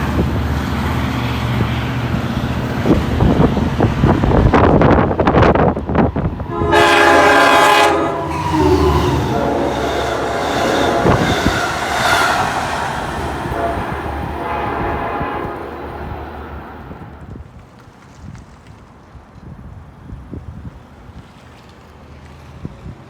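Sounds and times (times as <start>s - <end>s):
train rumble: 0.0s - 17.5s
train horn blast: 6.2s - 17.4s.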